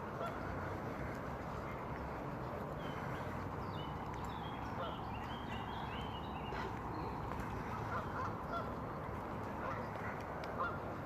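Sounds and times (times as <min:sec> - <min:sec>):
waterfowl honking: 0:00.0 - 0:00.7, 0:04.8 - 0:05.0, 0:07.6 - 0:08.8, 0:09.4 - 0:11.0
short high waterfowl calls: 0:00.2 - 0:00.5, 0:07.6 - 0:08.8, 0:09.6 - 0:10.8.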